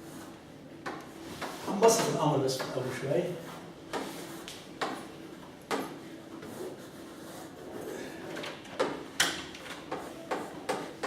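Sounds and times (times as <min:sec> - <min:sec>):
pen tapping and scraping on board: 0:03.9 - 0:04.2, 0:08.8 - 0:11.0.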